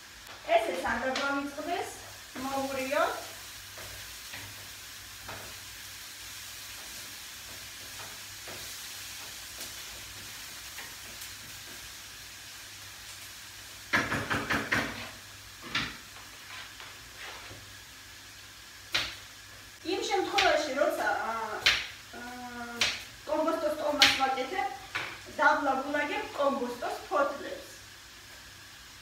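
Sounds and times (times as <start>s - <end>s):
vegetables sizzling in a pan: 0.0s - 29.0s
loud clattering knocks: 13.9s - 15.0s.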